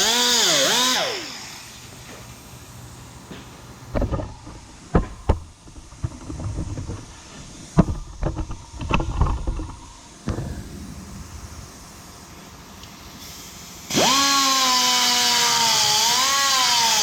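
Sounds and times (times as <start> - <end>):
metal clanks and knocks: 3.3 - 11.7.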